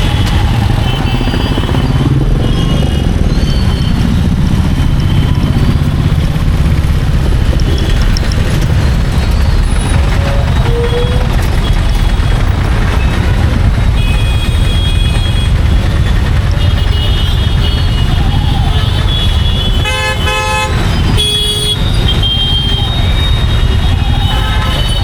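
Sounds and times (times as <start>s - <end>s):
motorcycle engine running: 0.0s - 25.0s
road and wind noise: 0.0s - 25.0s
vehicle horns honking: 10.2s - 11.4s, 13.0s - 15.7s, 16.6s - 25.0s.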